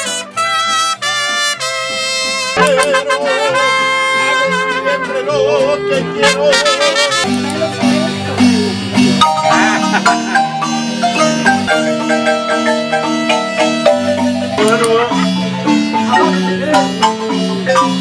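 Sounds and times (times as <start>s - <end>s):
brass melody with vibrato: 0.0s - 18.0s
marimba quick repeated notes: 6.6s - 18.0s.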